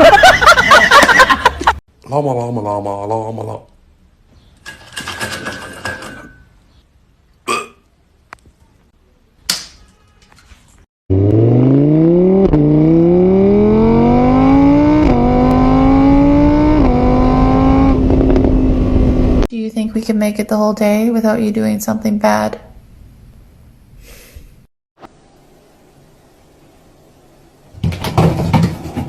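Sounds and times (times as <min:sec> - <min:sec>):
vehicle engine accelerating through gears: 0:11.1 - 0:19.5.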